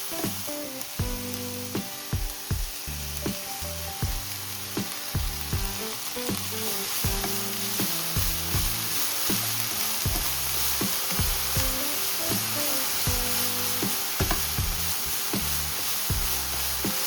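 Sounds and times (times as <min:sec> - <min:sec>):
peppers sizzling in a pan: 0:00.0 - 0:17.0
stirring in the pan: 0:04.3 - 0:17.0.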